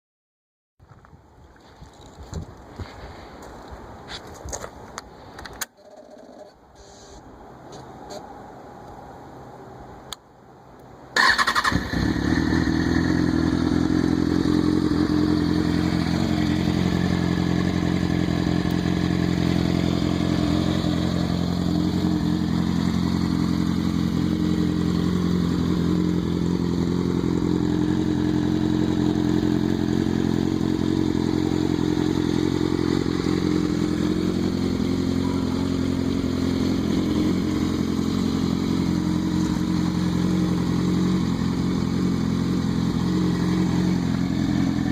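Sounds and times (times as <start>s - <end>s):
motorcycle engine starting and idling: 5.5s - 7.2s, 11.1s - 44.9s.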